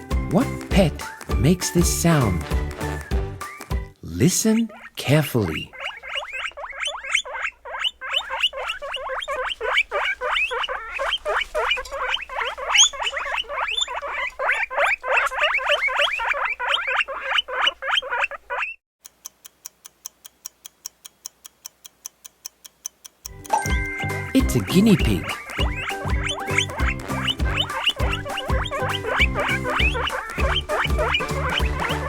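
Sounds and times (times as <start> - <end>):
guinea pig squeaking: 0.0 - 2.4, 4.5 - 18.8, 22.8 - 32.0
clock ticking: 19.0 - 31.9.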